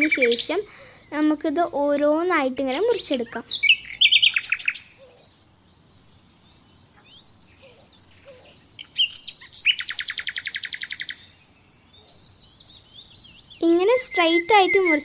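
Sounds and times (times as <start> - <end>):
small bird chirping: 0.0 - 1.3, 2.7 - 15.0
fast high bird trill: 13.4 - 15.0.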